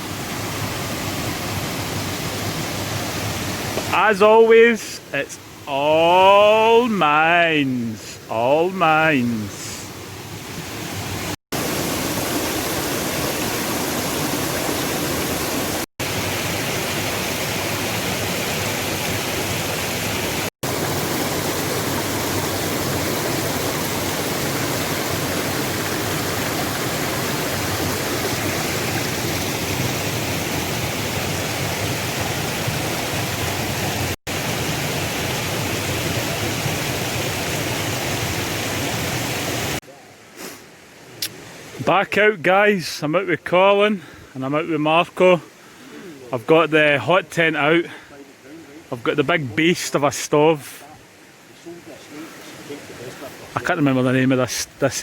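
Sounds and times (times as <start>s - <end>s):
waterfall roaring: 0.0s - 39.8s.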